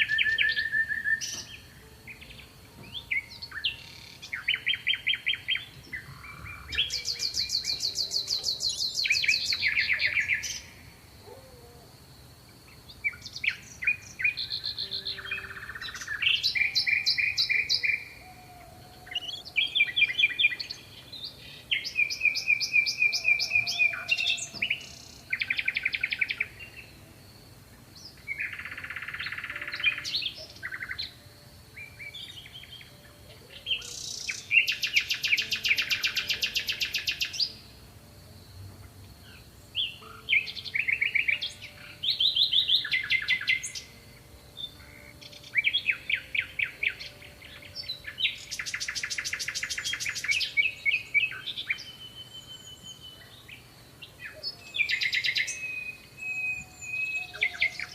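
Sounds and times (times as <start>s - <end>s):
songbirds trilling and chirping: 0.0s - 57.9s.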